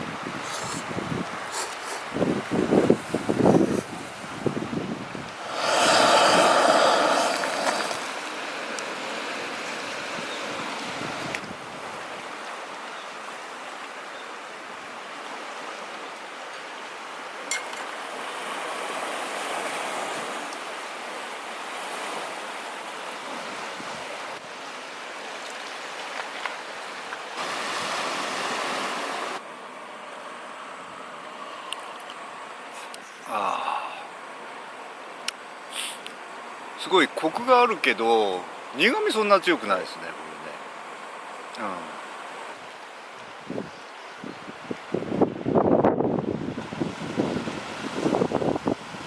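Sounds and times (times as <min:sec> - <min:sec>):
strong wind blowing: 0:00.0 - 0:12.1, 0:43.4 - 0:49.0.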